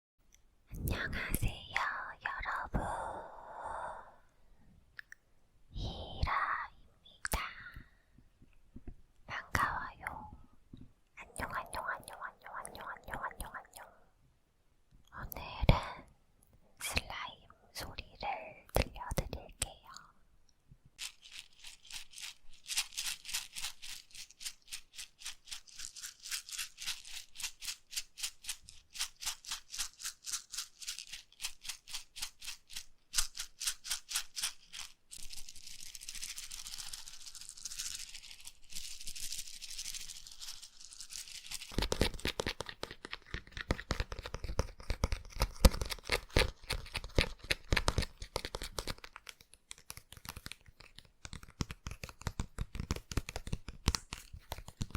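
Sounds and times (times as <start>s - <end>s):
rustling: 21.0s - 54.9s.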